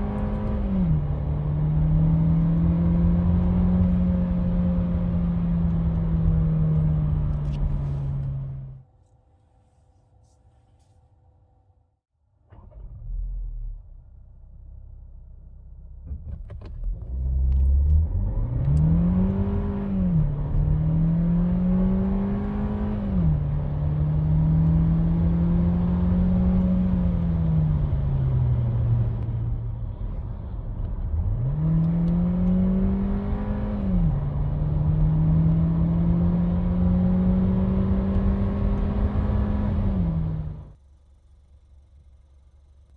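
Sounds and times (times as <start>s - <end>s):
car engine accelerating hard: 0.0s - 8.8s, 16.8s - 40.8s.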